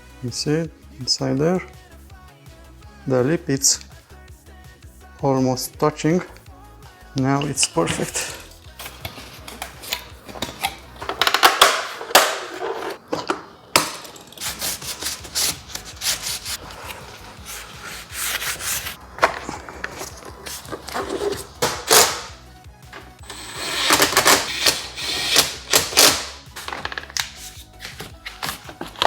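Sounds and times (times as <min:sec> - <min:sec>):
plastic parts scraping: 0:07.4 - 0:29.0
plastic parts clicking: 0:07.5 - 0:15.9, 0:19.2 - 0:23.1, 0:23.7 - 0:29.0.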